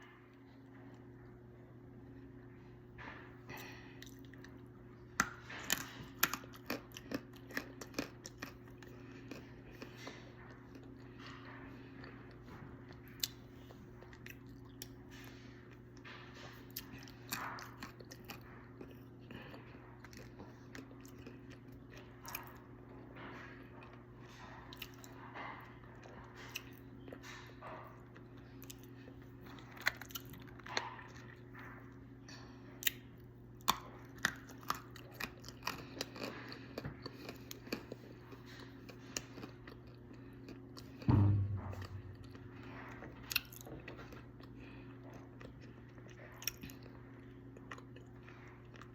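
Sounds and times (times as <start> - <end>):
steady low hum: 0.0 - 48.9
chewing crunchy clay: 3.5 - 48.9
low thump: 41.1 - 42.6.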